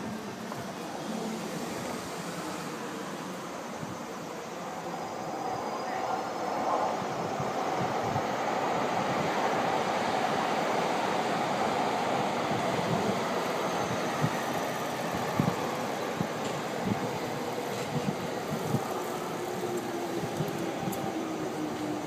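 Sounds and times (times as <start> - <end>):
train rumbling past: 0.0 - 22.0.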